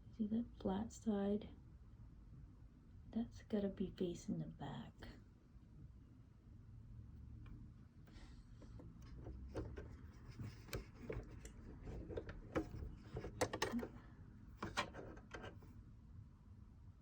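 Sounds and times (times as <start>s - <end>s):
sewing machine parts clicking: 9.0s - 14.0s.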